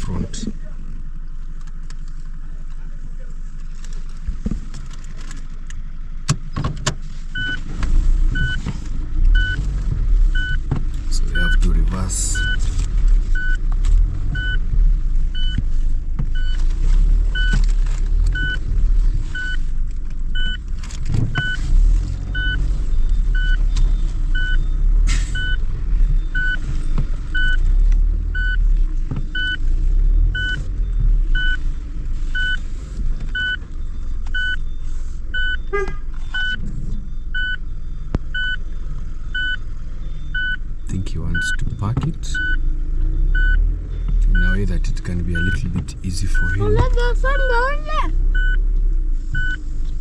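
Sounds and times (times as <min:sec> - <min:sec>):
truck engine rumble: 0:00.0 - 0:50.0
reversing alarm beeping: 0:09.4 - 0:09.6, 0:10.4 - 0:10.6, 0:11.2 - 0:12.6, 0:13.4 - 0:13.6, 0:15.3 - 0:15.6, 0:17.3 - 0:17.6, 0:21.4 - 0:31.7, 0:32.3 - 0:48.6, 0:49.4 - 0:49.7.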